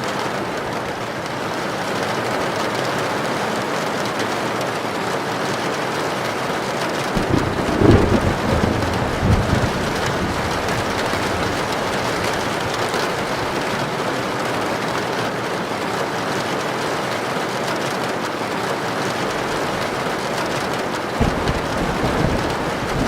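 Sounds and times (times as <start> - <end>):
heavy rain on a tin roof: 0.0 - 23.0
low thunder rumble: 7.2 - 13.9, 19.4 - 23.0.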